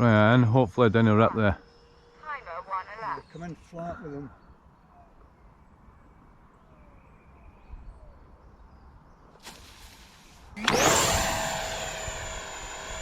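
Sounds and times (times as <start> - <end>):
electric ducted fan whine: 10.5 - 13.0.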